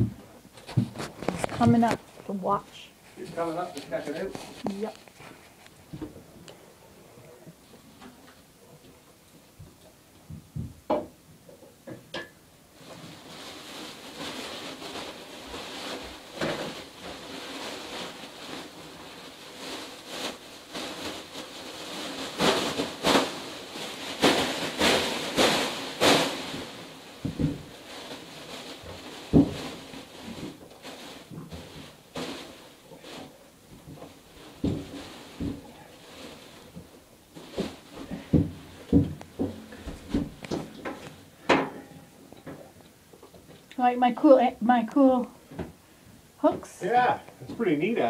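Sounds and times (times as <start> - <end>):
steady hiss: 0.0 - 48.0.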